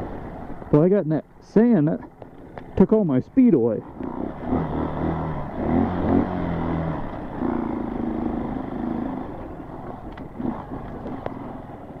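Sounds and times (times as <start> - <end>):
dirt bike engine revving: 3.8 - 11.9.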